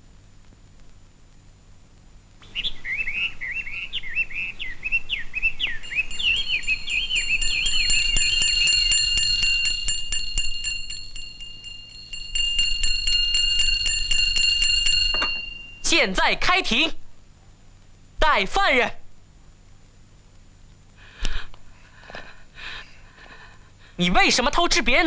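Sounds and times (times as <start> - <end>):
twittering bird chirps: 2.4 - 8.7
bell ringing rapidly: 5.8 - 16.2.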